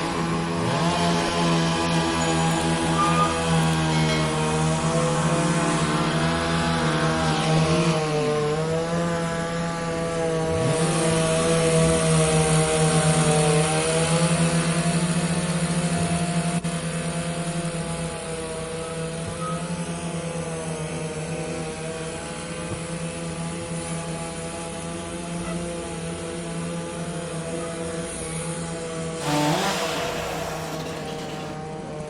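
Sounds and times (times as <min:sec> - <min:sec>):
engine humming: 0:29.2 - 0:32.0.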